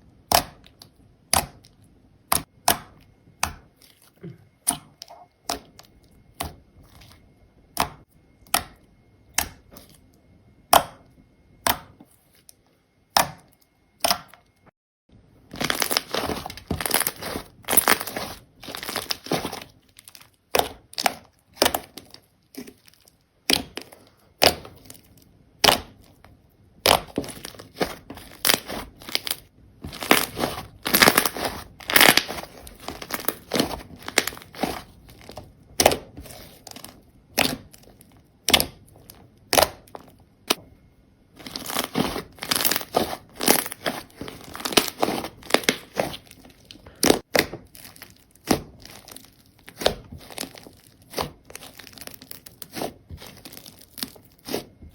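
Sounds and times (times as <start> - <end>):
slime crackling and popping: 15.4 - 40.6, 41.4 - 54.9.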